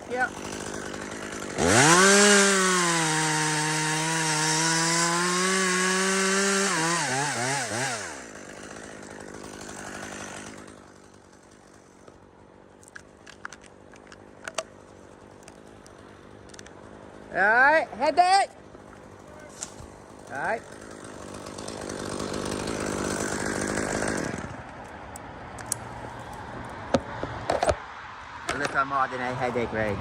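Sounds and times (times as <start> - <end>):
chainsaw cutting wood: 0.0 - 12.2, 18.6 - 24.9.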